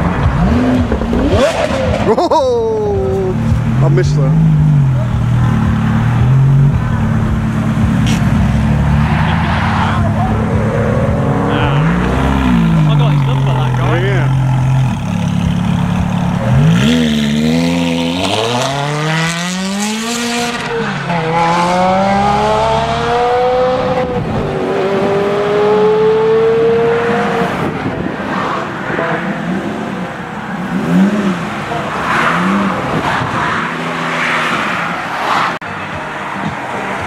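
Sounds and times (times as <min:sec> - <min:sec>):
car engine accelerating hard: 0:02.8 - 0:28.0.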